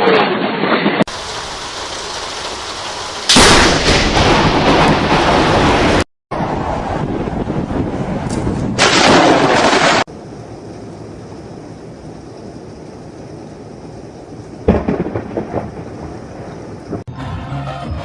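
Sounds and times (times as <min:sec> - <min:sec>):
thunder rumble: 0:00.0 - 0:17.1
sharp thunder crack: 0:00.8 - 0:10.1, 0:13.8 - 0:17.1.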